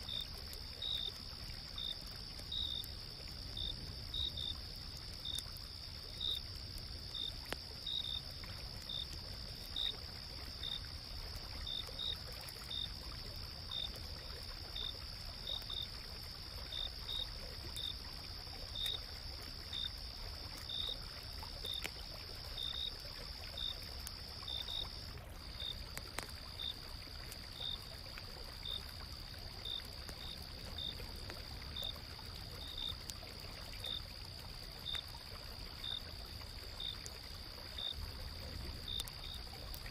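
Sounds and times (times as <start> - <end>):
insects trilling: 0.0 - 31.0, 31.6 - 33.2, 35.8 - 39.9
insect chirps: 0.0 - 39.9
stream flowing: 0.0 - 39.9.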